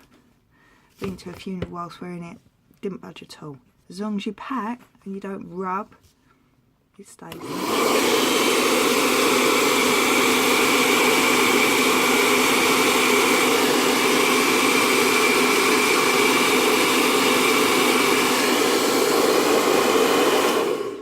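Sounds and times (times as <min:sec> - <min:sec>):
hairdryer running: 0:07.2 - 0:21.0.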